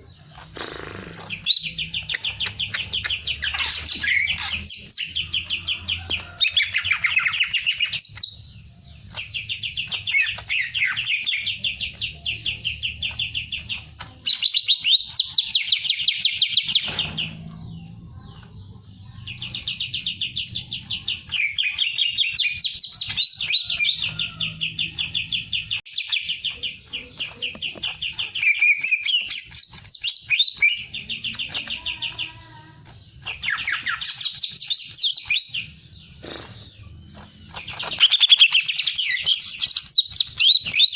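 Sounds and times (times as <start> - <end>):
songbird trilling: 33.2 - 40.9.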